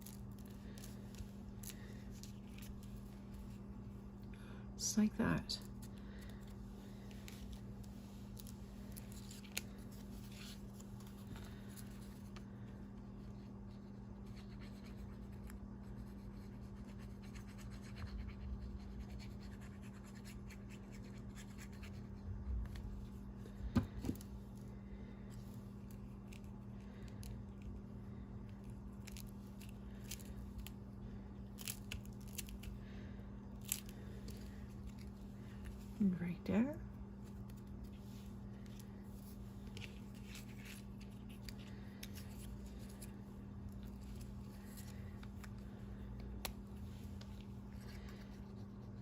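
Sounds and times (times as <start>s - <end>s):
steady low hum: 0.0s - 49.0s
paper and card rustling: 37.2s - 48.9s.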